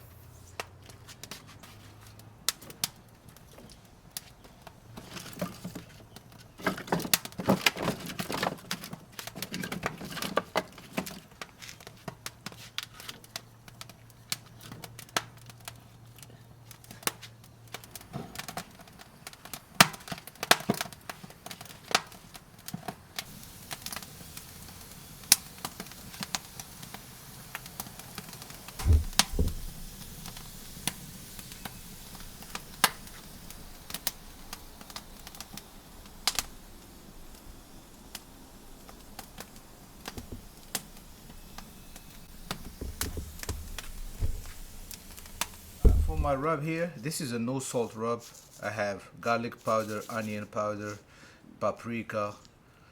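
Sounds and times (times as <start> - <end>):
wood fire cracking: 0.0 - 46.7
knocks of wood handled: 28.8 - 29.8, 42.4 - 46.5
dull double thump: 28.8 - 30.4, 40.1 - 46.5.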